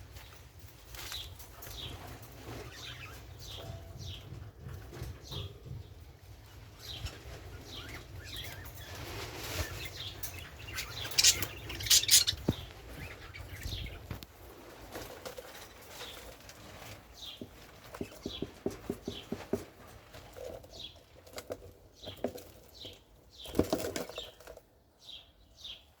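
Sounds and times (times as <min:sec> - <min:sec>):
budgerigars chirping: 0:06.8 - 0:14.1.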